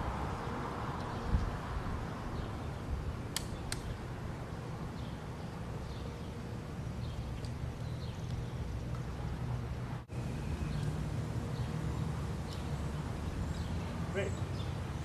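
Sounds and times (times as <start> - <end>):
sharp clicks: 3.3 - 3.9.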